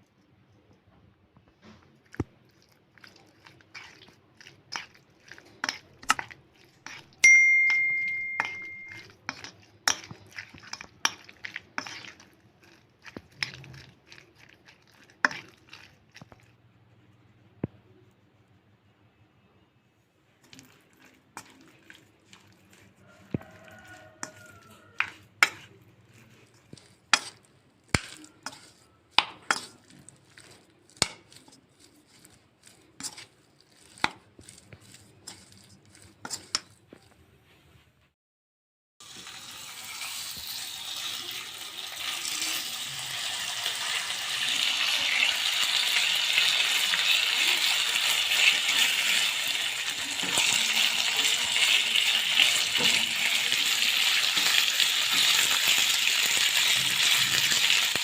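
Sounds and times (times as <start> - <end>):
food sizzling in a pan: 3.2 - 12.3, 13.0 - 16.3, 20.5 - 36.6, 39.0 - 58.0
utensils clinking against bowl: 3.7 - 14.2, 20.5 - 37.1.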